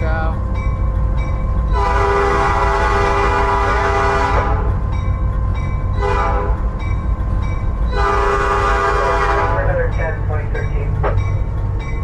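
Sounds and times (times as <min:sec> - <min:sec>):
locomotive engine rumble: 0:00.0 - 0:12.0
locomotive air horn: 0:01.7 - 0:04.7, 0:06.0 - 0:06.6, 0:07.9 - 0:09.7.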